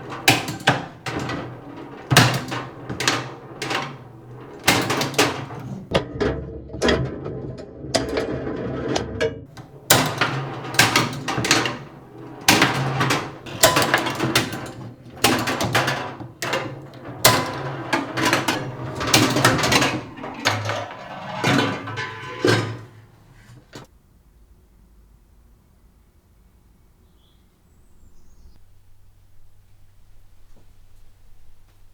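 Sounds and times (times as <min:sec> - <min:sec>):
arcade machine clacks and rattles: 0:00.0 - 0:05.9, 0:09.5 - 0:23.9.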